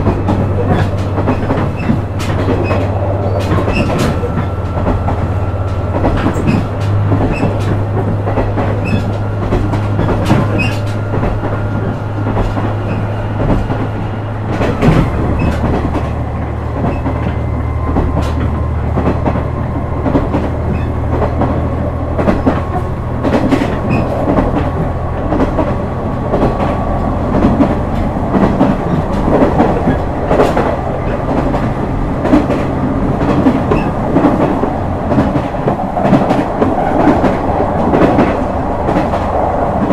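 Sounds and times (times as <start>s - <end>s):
train wheels clicking over rail joints: 0.0s - 39.9s.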